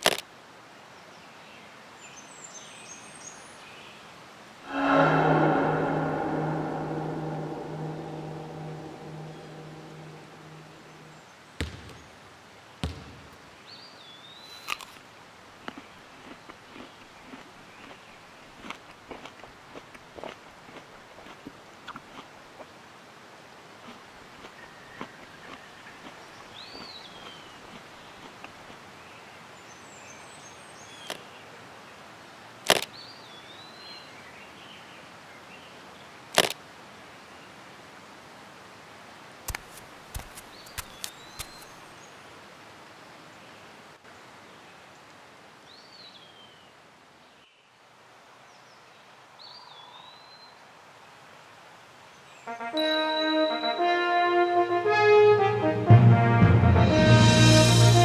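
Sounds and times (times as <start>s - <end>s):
low hum: 4.7s - 11.2s.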